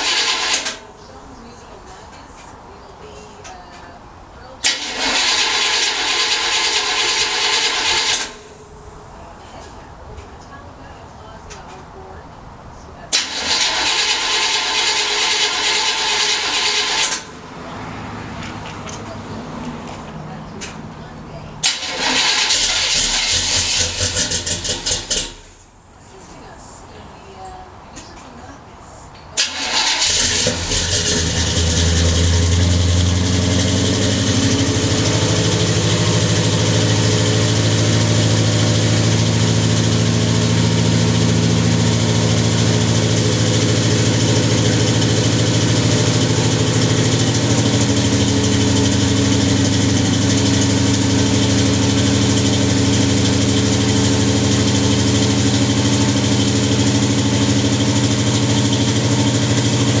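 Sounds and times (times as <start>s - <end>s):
car engine idling: 0.0s - 60.0s.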